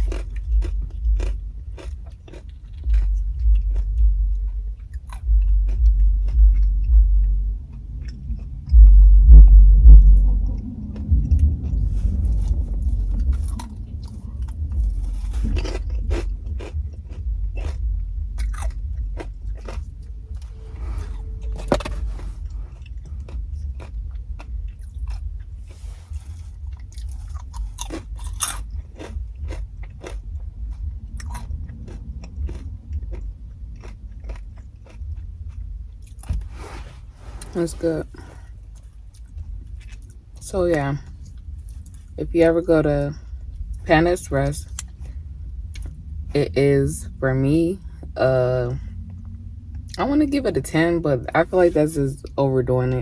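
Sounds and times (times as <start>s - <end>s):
crisp food crunching: 0.0s - 7.0s, 10.6s - 36.5s, 37.4s - 42.2s
chewing: 0.0s - 8.8s, 10.2s - 42.2s, 43.1s - 46.4s, 47.8s - 50.0s.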